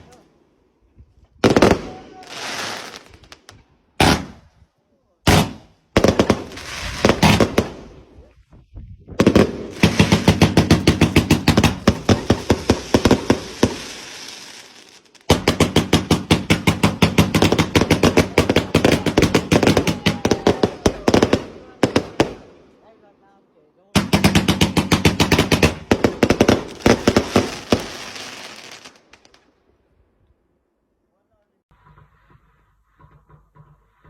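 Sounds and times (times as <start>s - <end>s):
fireworks bangs: 1.4s - 4.6s, 5.3s - 8.3s, 9.0s - 22.7s, 24.0s - 29.4s.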